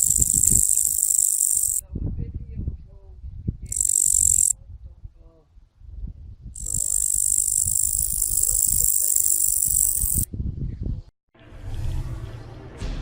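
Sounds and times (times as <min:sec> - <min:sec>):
grasshopper stridulating: 0:00.0 - 0:01.8, 0:03.7 - 0:04.6, 0:06.6 - 0:10.3.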